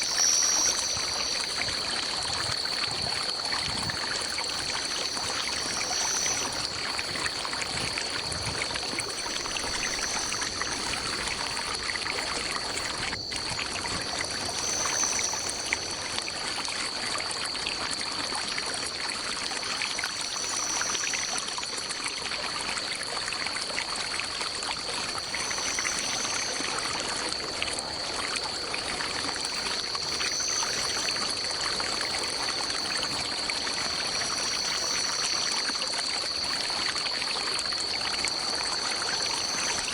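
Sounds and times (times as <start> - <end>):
continuous high-pitched tone: 0.0 - 17.4
stream trickling: 0.0 - 39.9.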